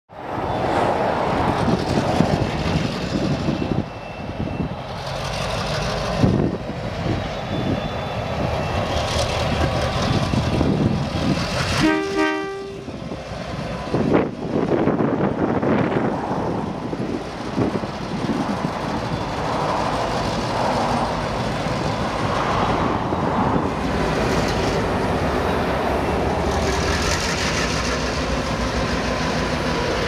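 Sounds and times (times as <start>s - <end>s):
diesel locomotive engines: 0.1s - 30.0s
wheels rumbling on rail: 0.1s - 30.0s
locomotive horn blast: 11.7s - 13.0s.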